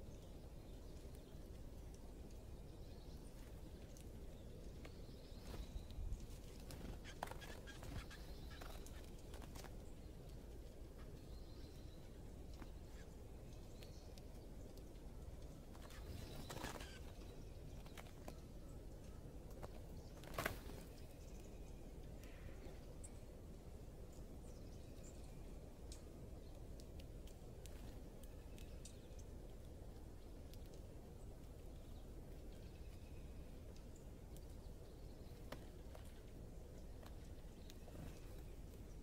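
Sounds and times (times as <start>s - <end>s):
bird chirps: 3.9s - 9.4s, 15.7s - 19.2s.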